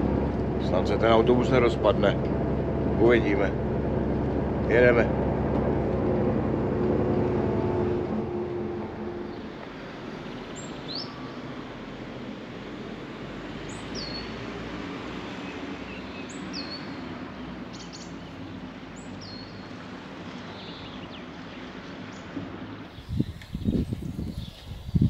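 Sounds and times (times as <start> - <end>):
outdoor background noise: 0.0 - 25.0
loud thumps: 1.6 - 9.7.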